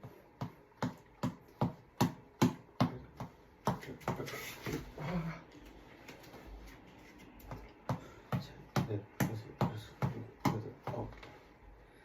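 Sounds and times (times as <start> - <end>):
reflex ball being punched: 0.0 - 4.3, 7.4 - 11.1.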